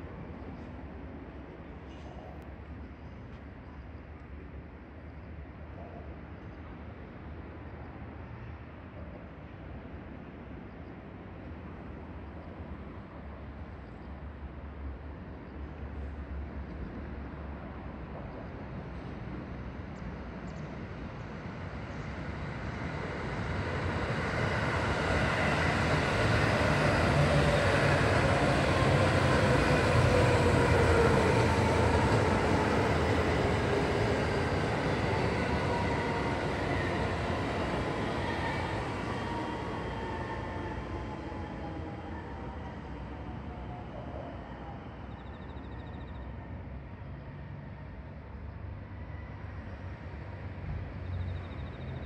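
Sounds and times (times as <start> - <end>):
electric train passing: 17.1 - 52.0.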